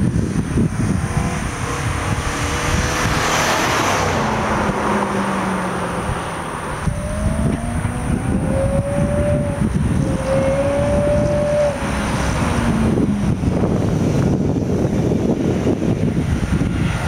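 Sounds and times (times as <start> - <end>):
car engine and exhaust rumbling: 0.0 - 17.0
thin rising tone: 1.1 - 13.5.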